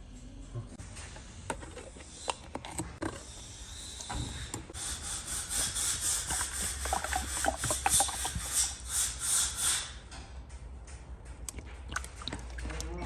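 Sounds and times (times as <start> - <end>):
rubbing or scraping strokes: 4.7 - 10.0.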